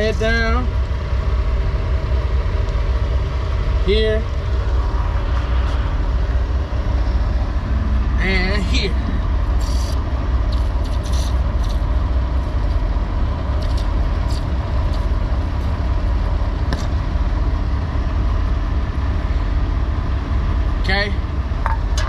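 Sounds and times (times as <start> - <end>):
diesel engine idling: 0.0 - 22.0
short hisses: 9.5 - 12.8.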